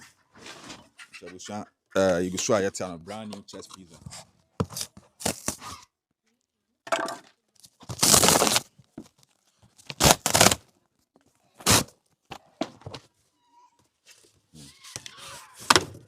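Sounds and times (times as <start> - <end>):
packaging tearing: 5.2 - 5.6, 7.8 - 8.7, 9.8 - 10.6, 11.6 - 11.9
packaging rustling and crinkling: 7.6 - 10.8.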